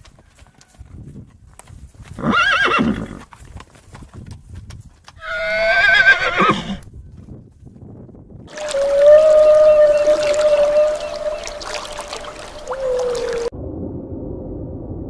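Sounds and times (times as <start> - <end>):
hooves clip-clopping: 0.0 - 13.5
horse neighing: 2.2 - 3.2, 5.2 - 6.8.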